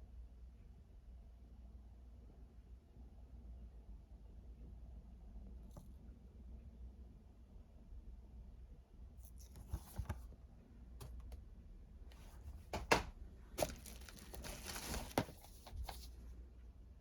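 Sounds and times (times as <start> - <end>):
plastic cases clicking: 12.2 - 16.1
plastic packaging crinkling: 13.6 - 16.2.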